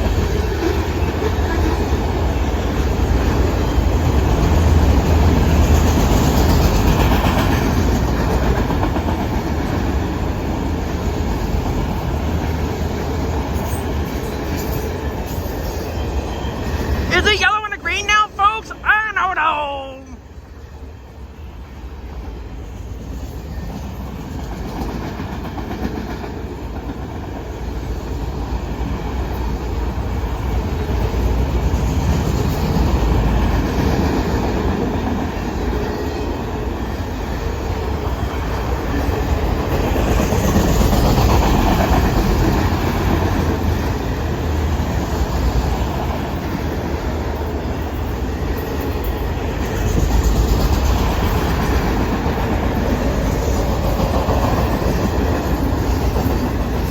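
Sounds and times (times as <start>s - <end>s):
freight train wheels clattering: 48.1s - 56.9s.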